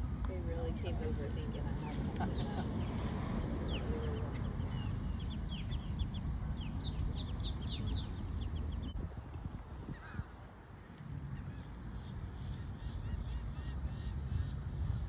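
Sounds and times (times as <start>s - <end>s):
waterbirds chirping: 0.0s - 9.0s
low rumble: 0.0s - 9.6s.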